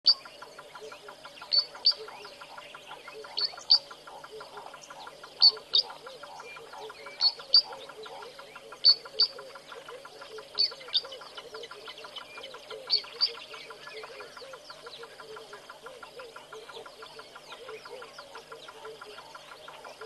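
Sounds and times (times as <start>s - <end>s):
frogs calling: 0.1s - 20.0s.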